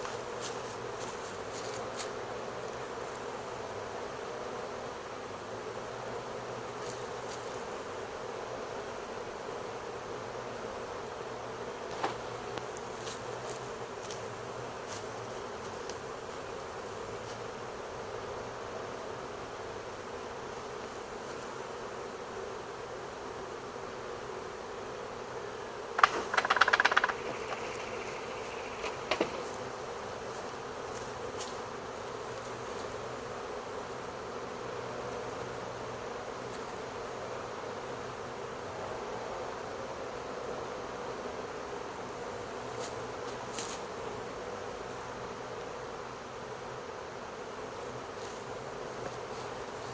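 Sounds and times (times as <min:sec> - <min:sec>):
bee swarm buzzing: 0:25.4 - 0:34.1
faint ticks: 0:26.0 - 0:29.6
brief knocks: 0:28.8 - 0:29.5.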